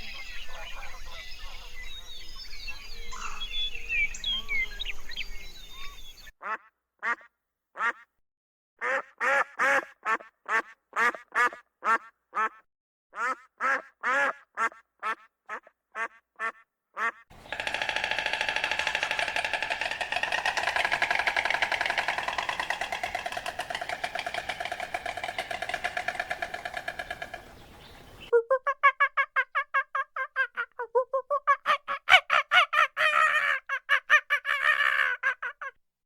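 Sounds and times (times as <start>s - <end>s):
duck quacking: 6.4s - 8.0s, 8.8s - 12.6s, 13.2s - 17.2s.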